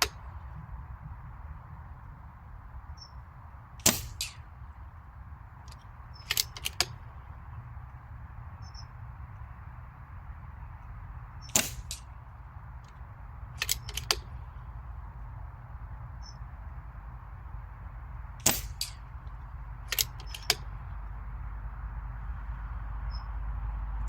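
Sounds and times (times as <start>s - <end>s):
air rifle crack: 3.8s - 4.9s, 5.6s - 7.6s, 11.4s - 14.8s, 18.4s - 21.0s
rifle cocking clicks: 5.6s - 7.3s, 13.6s - 14.4s, 19.9s - 20.7s.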